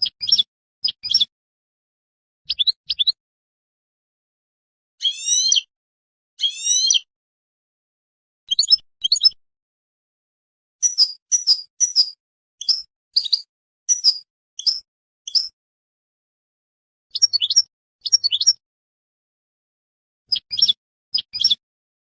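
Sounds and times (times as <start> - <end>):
birds chirping: 2.5 - 3.2, 5.0 - 5.7, 6.4 - 7.1, 8.5 - 9.4, 10.8 - 15.5, 17.1 - 18.6, 20.3 - 21.6.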